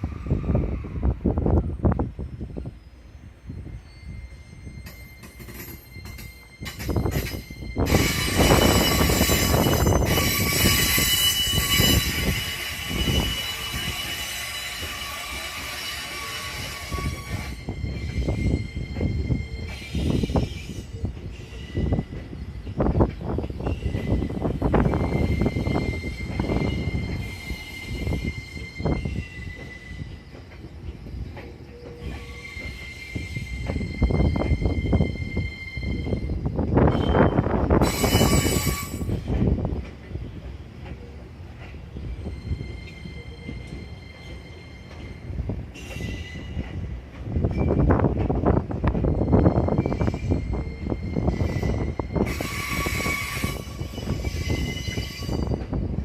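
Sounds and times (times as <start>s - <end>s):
train wheels squealing on rails: 0.0s - 56.0s.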